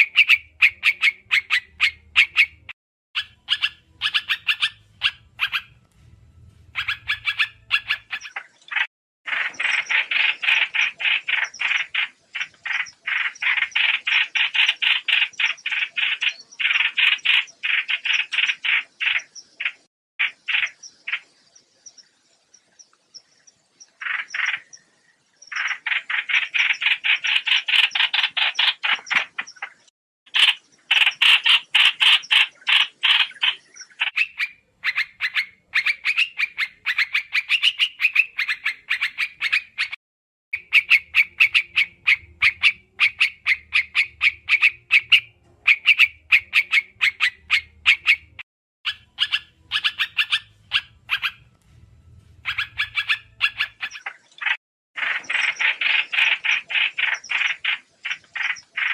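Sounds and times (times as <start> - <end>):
bird chattering call: 0.0 - 5.8, 6.7 - 21.3, 40.6 - 51.5, 52.4 - 58.9
faint low hum: 4.9 - 7.4, 50.5 - 53.4.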